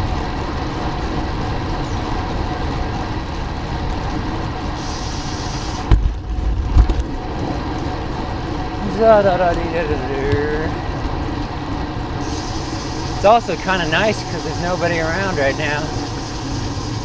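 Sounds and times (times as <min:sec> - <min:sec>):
bicycle road rumble: 0:00.0 - 0:17.0
wind noise: 0:00.0 - 0:17.0
brief high hiss: 0:04.8 - 0:05.9.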